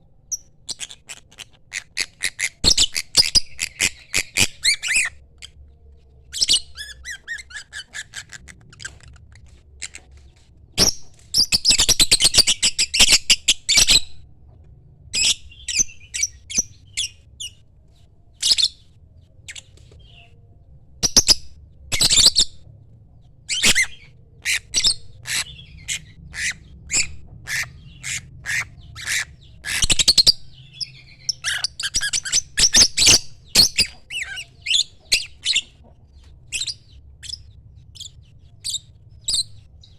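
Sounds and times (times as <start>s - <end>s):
lovebird chirps and squawks: 0.3s - 5.6s, 6.3s - 10.1s, 10.8s - 14.2s, 15.2s - 17.6s, 18.4s - 18.8s, 21.0s - 22.6s, 23.5s - 35.8s, 36.5s - 39.9s
lovebird chattering calls: 23.5s - 35.7s.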